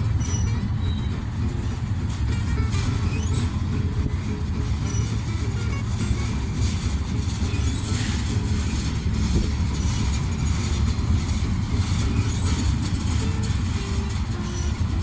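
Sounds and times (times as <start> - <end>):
freight train rumbling on rails: 0.0 - 15.0.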